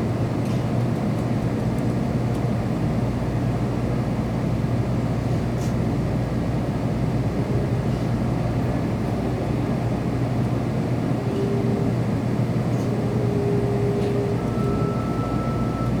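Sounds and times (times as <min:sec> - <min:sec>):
train cabin rumble: 0:04.7 - 0:16.0
faint whine: 0:11.0 - 0:16.0.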